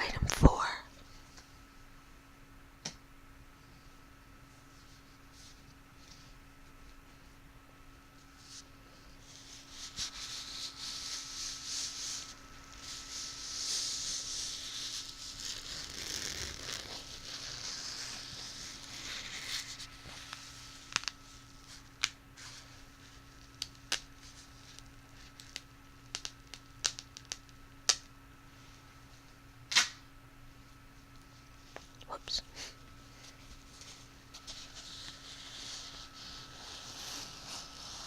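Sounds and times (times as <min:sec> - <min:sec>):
rustling crinkling object: 0:08.2 - 0:26.4, 0:32.9 - 0:38.0.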